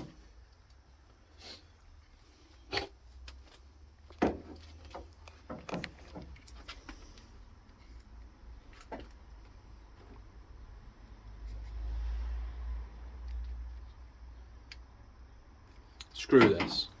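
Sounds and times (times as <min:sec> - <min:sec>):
tools and car parts clinking: 0:16.0 - 0:17.0.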